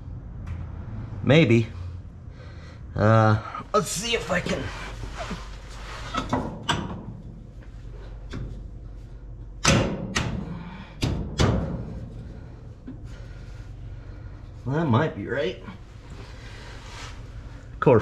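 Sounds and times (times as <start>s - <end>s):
metal clanks and knocks: 6.0s - 8.7s, 9.6s - 13.1s.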